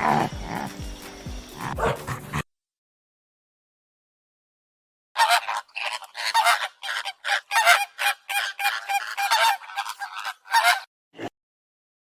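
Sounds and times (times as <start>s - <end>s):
geese honking: 5.2s - 10.9s.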